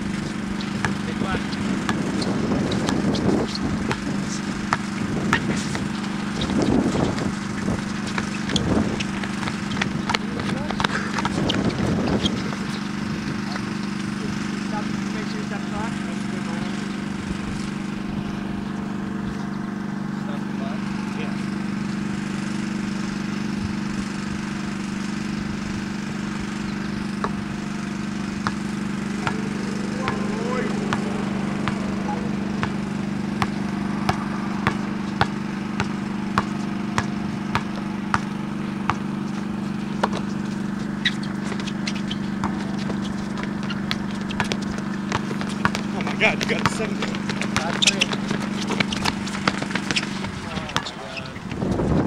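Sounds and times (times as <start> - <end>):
low mechanical hum: 0.0 - 52.0
shoe squeaks: 0.1 - 13.8, 40.1 - 51.8
low hum: 25.3 - 47.5.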